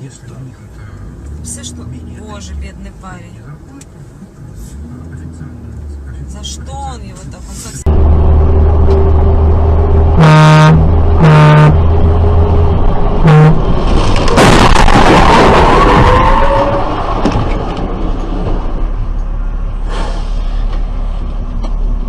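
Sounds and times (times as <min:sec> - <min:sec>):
car horn honking: 0:10.2 - 0:11.9, 0:13.2 - 0:13.7.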